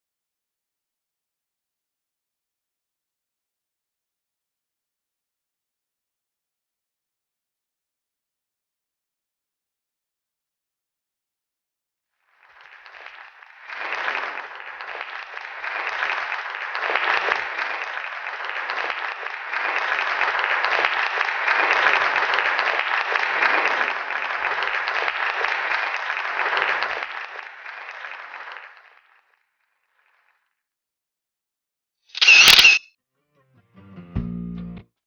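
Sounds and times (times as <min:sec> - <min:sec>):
crowd applause: 0:12.2 - 0:30.5.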